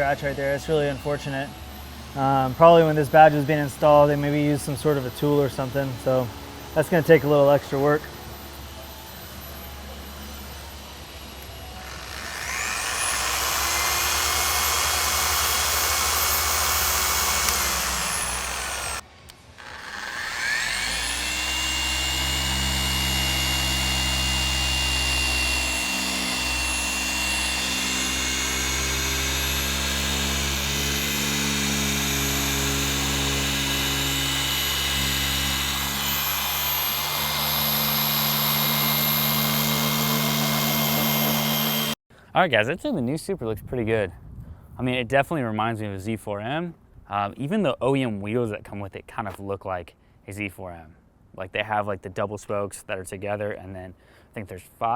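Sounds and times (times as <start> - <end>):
electric polisher whining: 7.3 - 19.0, 19.6 - 42.0.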